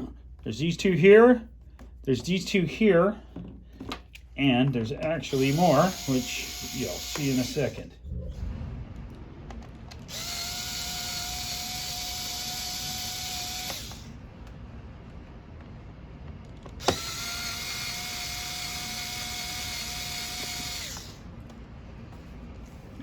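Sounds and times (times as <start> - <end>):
electric screwdriver whining: 5.3 - 7.8, 10.1 - 14.1, 16.8 - 21.2.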